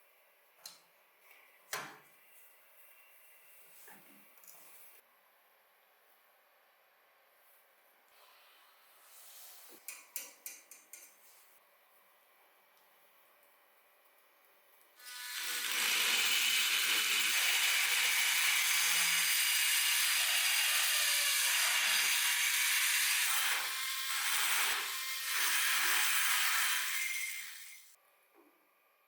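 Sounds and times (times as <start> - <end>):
power tool abrading surface: 15.0 - 28.0.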